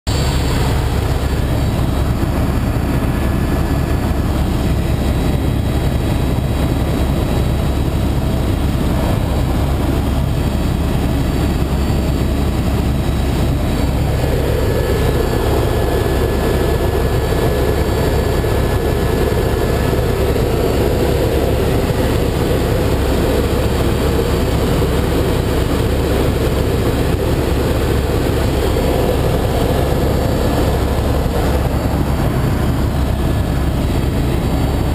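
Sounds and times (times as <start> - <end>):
helicopter engine and rotor drone: 0.1 - 34.9.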